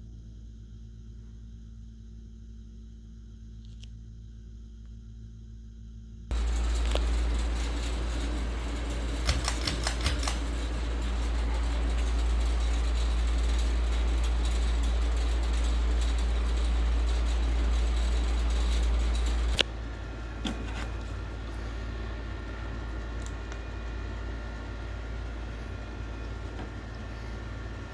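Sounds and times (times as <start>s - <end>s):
sharp clicks: 6.3s - 13.8s
ceiling fan running: 6.3s - 27.9s.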